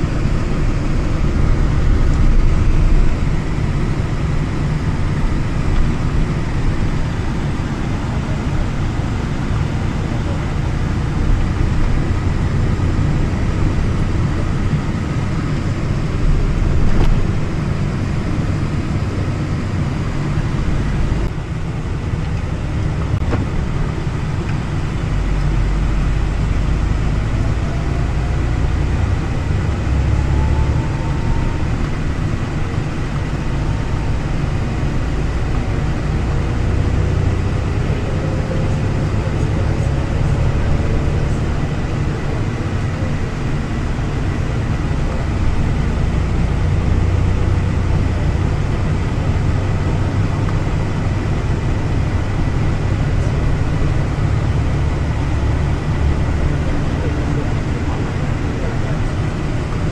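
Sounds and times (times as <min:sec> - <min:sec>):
electric train rumbling: 0:00.0 - 0:59.9.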